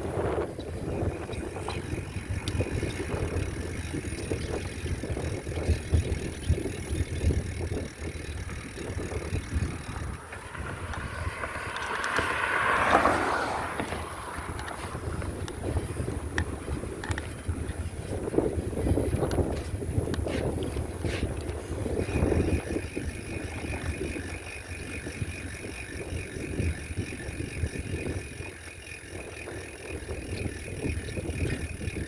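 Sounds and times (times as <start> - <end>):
tyres rolling on road: 0.0 - 17.6
bicycle rattles: 0.0 - 32.0
wind buffeting microphone: 0.0 - 32.0.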